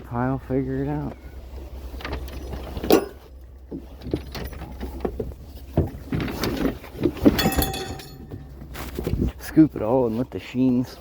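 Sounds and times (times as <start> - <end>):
scrap metal and wood clattering: 2.0 - 9.4
metallic ring: 7.4 - 8.6.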